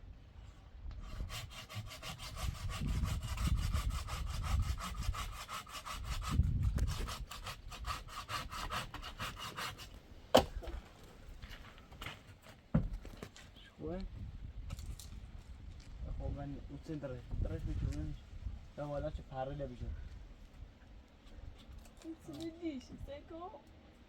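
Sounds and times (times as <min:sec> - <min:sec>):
hand saw cutting wood: 0:01.0 - 0:10.8.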